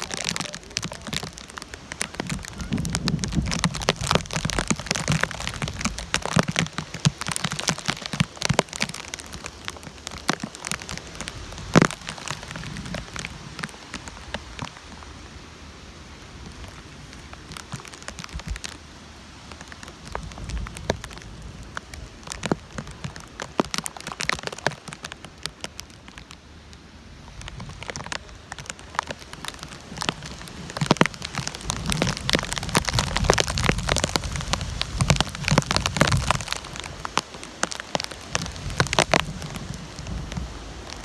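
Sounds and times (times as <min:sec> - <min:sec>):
low gusty rumble: 0:00.0 - 0:06.3, 0:38.2 - 0:41.0
heavy rain splattering: 0:00.0 - 0:41.0.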